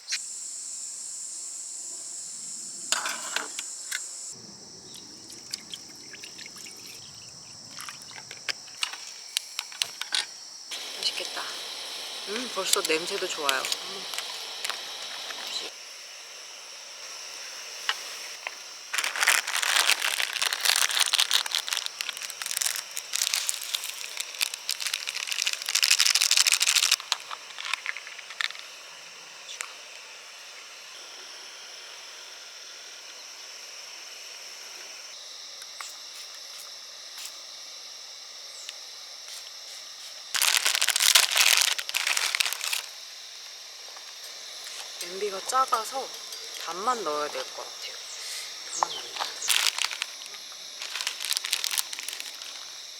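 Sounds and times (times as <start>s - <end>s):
faint steady hiss: 0.0s - 52.9s
plastic packaging crinkling: 12.4s - 15.7s, 18.9s - 28.6s, 40.4s - 42.9s, 48.6s - 52.9s.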